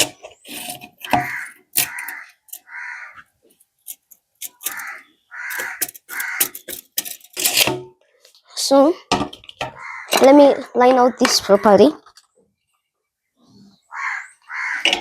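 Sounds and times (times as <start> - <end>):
harsh bird calls: 1.1 - 3.3, 4.6 - 6.8, 9.7 - 12.7, 13.3 - 15.0.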